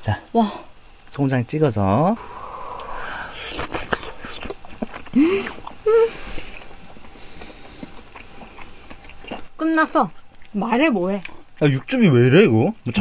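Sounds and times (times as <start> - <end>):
closed-mouth mmm hums: 2.2 - 9.5
people chewing: 2.2 - 13.0
wet mouth clicks: 2.7 - 5.8.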